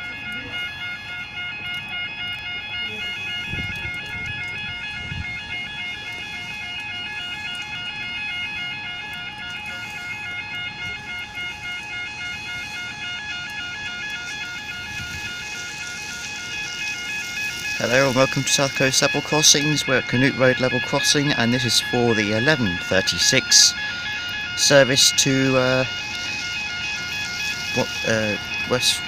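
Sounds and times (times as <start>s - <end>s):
two-tone warning alarm: 0.0s - 29.0s.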